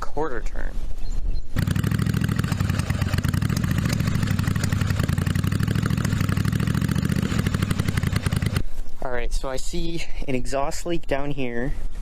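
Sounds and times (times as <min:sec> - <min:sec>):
motorcycle engine idling: 0:01.6 - 0:08.6.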